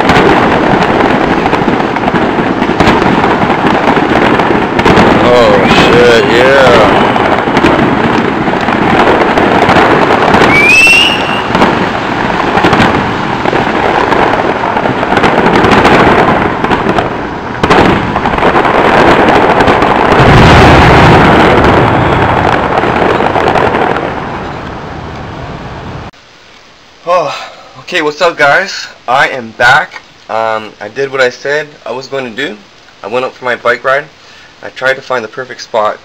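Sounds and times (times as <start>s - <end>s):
deep firework boom: 0.0s - 25.0s
fireworks crackling and banging: 0.0s - 26.2s, 27.0s - 36.0s
firework rising whistle: 5.4s - 7.3s, 9.9s - 13.9s.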